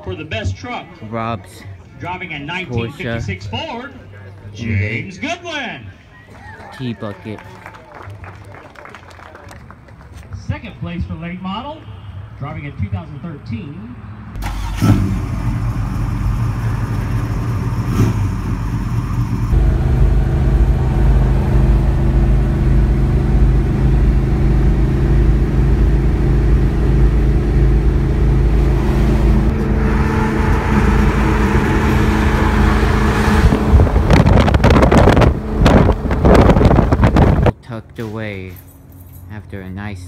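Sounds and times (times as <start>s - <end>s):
car engine idling: 14.4s - 37.5s.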